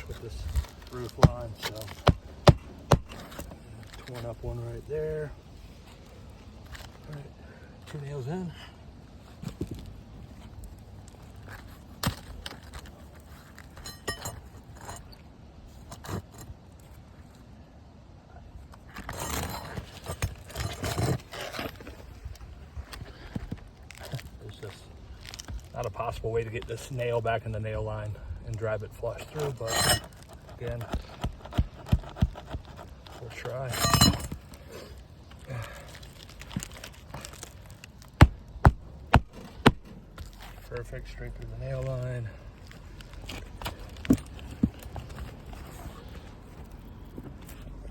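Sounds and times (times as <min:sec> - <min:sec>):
shingle scraping rustle: 0:00.0 - 0:08.5, 0:09.1 - 0:17.7, 0:18.4 - 0:47.9
nails jingling and clinking: 0:13.8 - 0:15.0, 0:29.4 - 0:30.3, 0:33.7 - 0:34.6.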